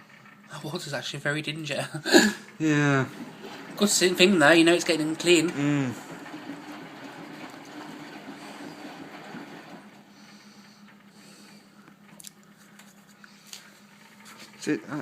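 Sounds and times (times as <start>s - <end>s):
low steady hum: 0.0s - 15.0s
washing machine drum turning: 2.4s - 11.1s.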